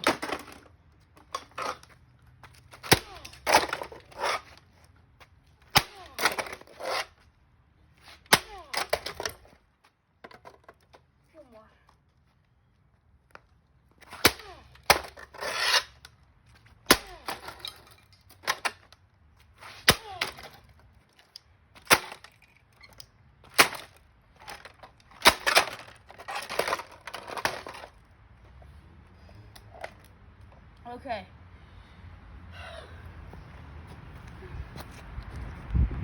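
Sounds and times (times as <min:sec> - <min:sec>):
cracking and rattling: 0:19.9 - 0:28.0.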